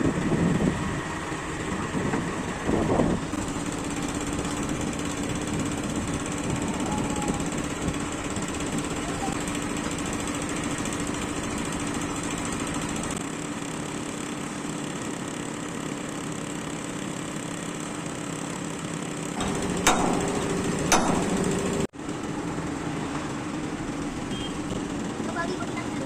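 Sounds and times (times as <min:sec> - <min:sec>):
mechanical drone: 0:19.3 - 0:21.9
sharp metal knocks: 0:19.4 - 0:21.9.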